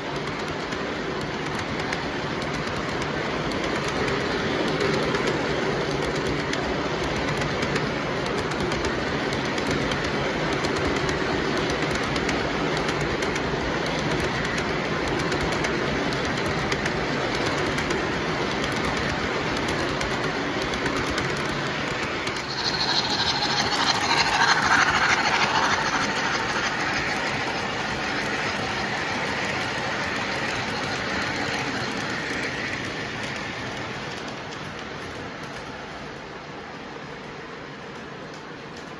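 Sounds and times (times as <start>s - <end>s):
model train running on track: 0.0s - 38.9s
loud hiss: 22.0s - 32.9s.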